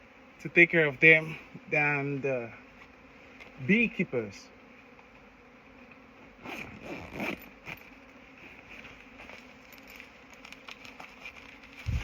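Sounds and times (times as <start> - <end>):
honeybees buzzing: 0.0 - 12.0
faint clicks and rustles: 7.0 - 12.0.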